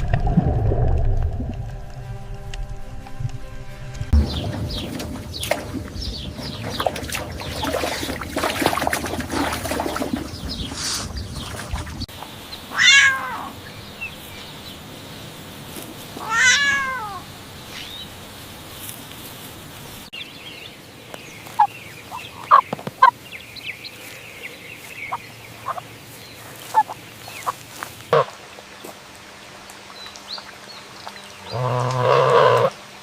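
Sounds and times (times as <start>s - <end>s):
animal drawn-out meow-like call: 12.7s - 13.6s, 16.2s - 17.2s.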